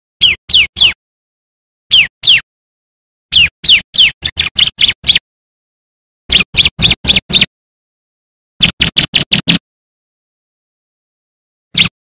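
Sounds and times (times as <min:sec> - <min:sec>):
bird chirping in bursts: 0:00.2 - 0:01.0, 0:01.9 - 0:02.5, 0:03.3 - 0:05.2, 0:06.3 - 0:07.5, 0:08.6 - 0:09.6, 0:11.8 - 0:12.0.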